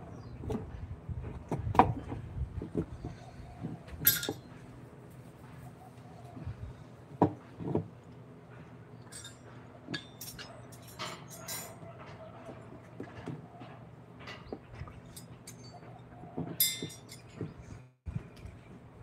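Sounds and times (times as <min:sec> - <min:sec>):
hard objects knocking and clinking: 0:14.2 - 0:17.5.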